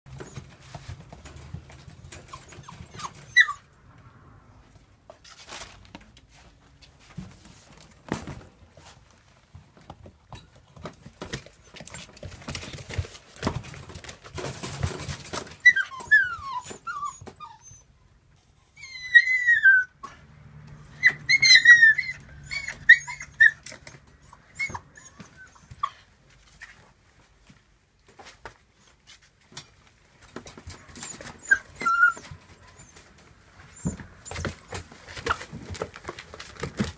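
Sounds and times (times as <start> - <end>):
knocks and scuffling: 0.1 - 3.4, 4.6 - 17.4, 22.1 - 36.9
puppies whimpering and yipping: 0.1 - 3.8, 14.8 - 18.0, 18.6 - 20.2, 20.8 - 26.8, 30.5 - 36.9.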